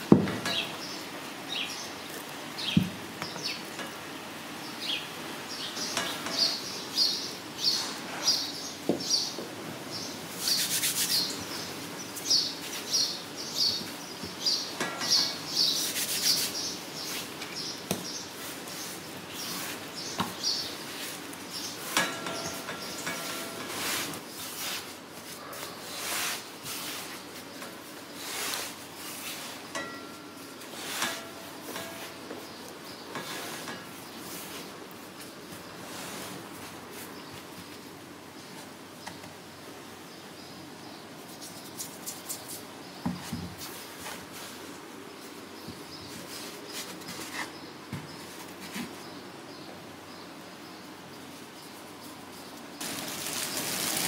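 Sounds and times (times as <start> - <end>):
faint room hiss: 0.0 - 54.0
dough rustling in basket: 18.2 - 37.8, 51.8 - 54.0
dough swishing on pastry mat: 23.7 - 27.6, 28.2 - 29.6.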